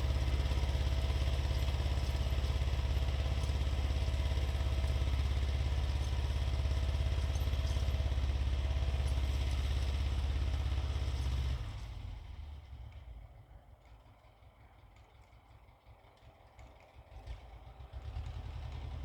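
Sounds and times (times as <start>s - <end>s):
tractor engine running: 0.0s - 12.3s.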